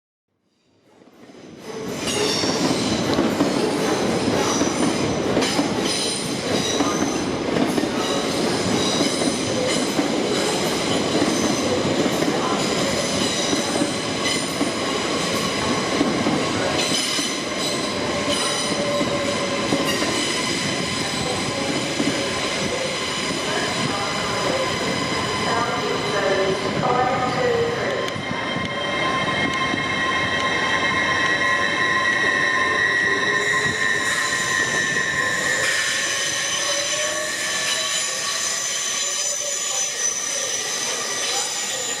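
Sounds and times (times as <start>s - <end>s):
train wheels squealing: 1.7s - 7.3s, 16.4s - 26.6s, 27.5s - 42.0s.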